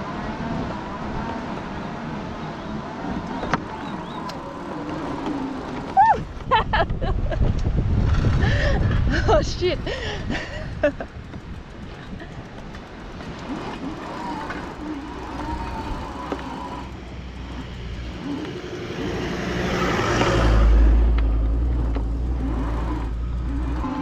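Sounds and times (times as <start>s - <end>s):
tyre noise: 1.9s - 9.5s, 11.1s - 24.0s
vehicle driving past: 13.0s - 24.0s.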